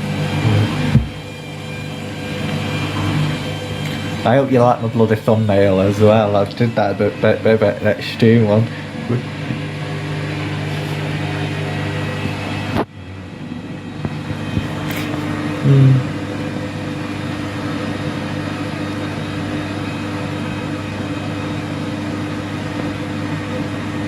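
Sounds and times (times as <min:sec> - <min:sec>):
washing machine humming: 0:00.0 - 0:24.0
short low thud: 0:00.9 - 0:01.2.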